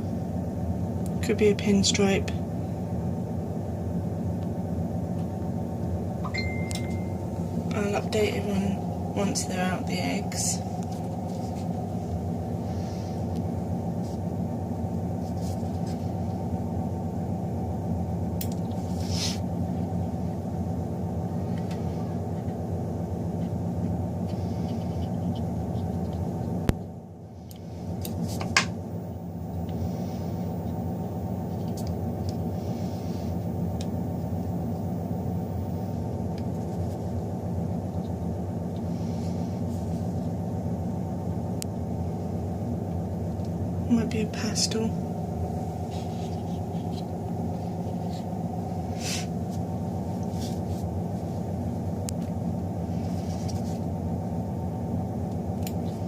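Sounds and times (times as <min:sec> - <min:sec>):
low mechanical hum: 0:00.0 - 0:56.0.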